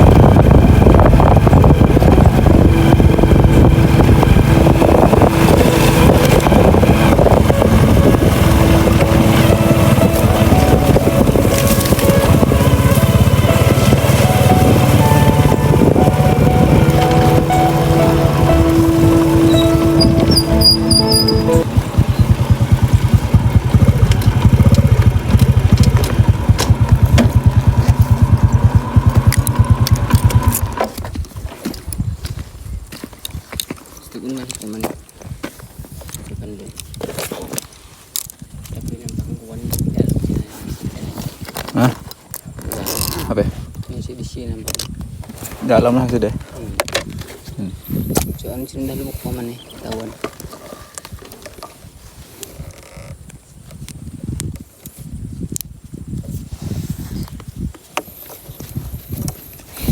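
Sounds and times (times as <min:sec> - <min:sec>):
small boat motor running: 0:00.0 - 0:31.0
small engine putting: 0:00.0 - 0:31.1
wind buffeting microphone: 0:00.0 - 0:33.7, 0:38.3 - 0:59.9.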